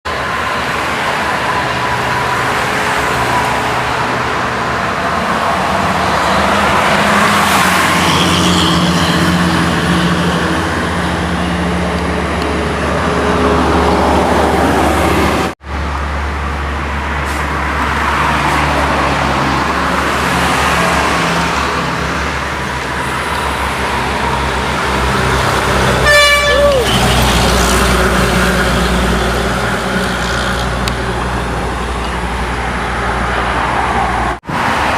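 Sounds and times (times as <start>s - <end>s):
heavy traffic passing: 0.0s - 34.9s
vehicle horn blast: 26.0s - 27.3s.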